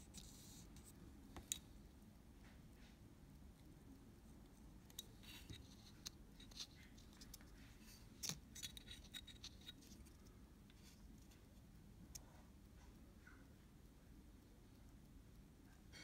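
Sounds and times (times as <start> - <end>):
faint scratching of hand tools: 0.0 - 1.0, 4.3 - 13.5.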